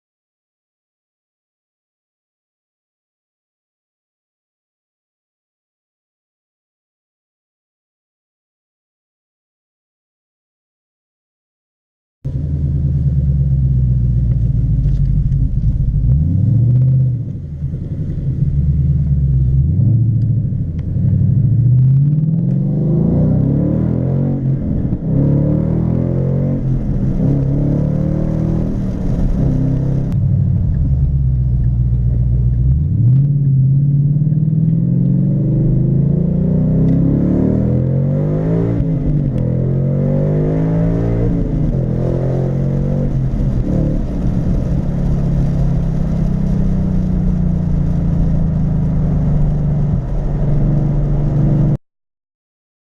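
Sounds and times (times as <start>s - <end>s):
car engine accelerating through gears: 12.3s - 51.8s.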